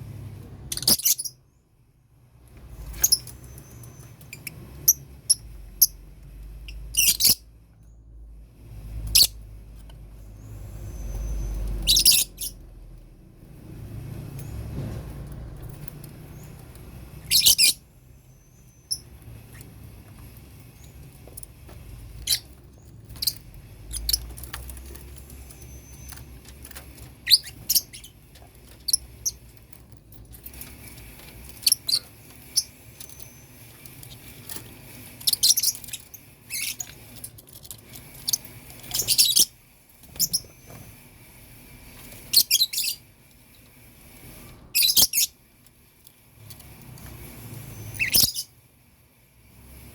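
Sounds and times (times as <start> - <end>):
lovebirds chirping: 0.0 - 1.7, 2.6 - 12.9, 16.1 - 45.5, 46.4 - 48.7.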